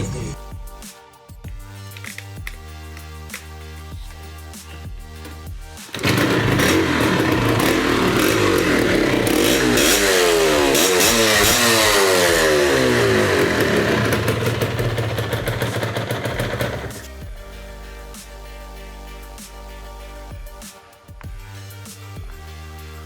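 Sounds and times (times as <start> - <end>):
motorcycle engine revving: 5.9 - 17.1.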